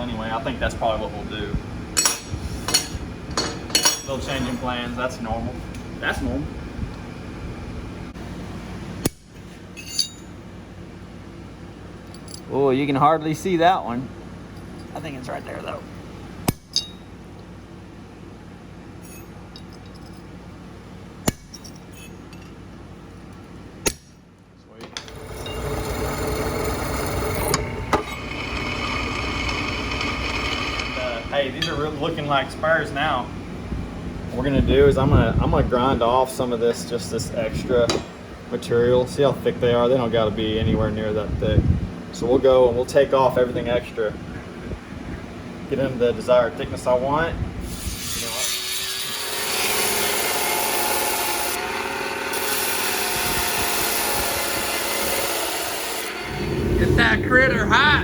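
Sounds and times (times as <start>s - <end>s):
electric power tool motor humming: 25.1s - 31.4s, 47.7s - 56.8s.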